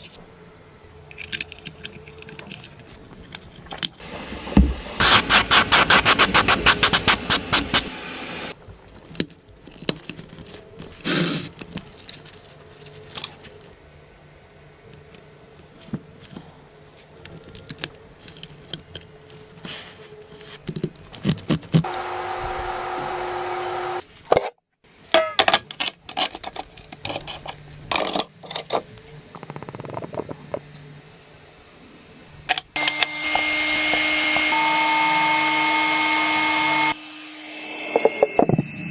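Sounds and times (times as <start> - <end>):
machine hum: 4.0 - 8.6, 21.9 - 24.0, 32.8 - 38.9.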